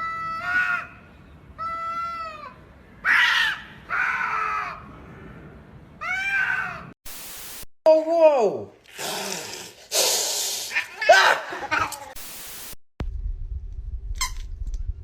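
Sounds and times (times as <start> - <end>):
static-like hiss: 7.1 - 7.7, 12.2 - 12.8.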